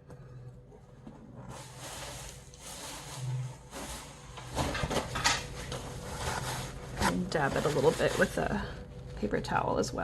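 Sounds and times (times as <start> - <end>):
brush swishing over paper: 1.5 - 4.2.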